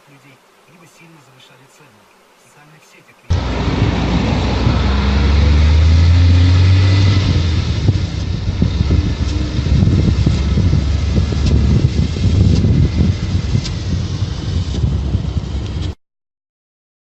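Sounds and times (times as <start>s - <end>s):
low rumbling and buffeting: 3.3s - 16.0s
vehicle engine hum: 3.3s - 16.0s.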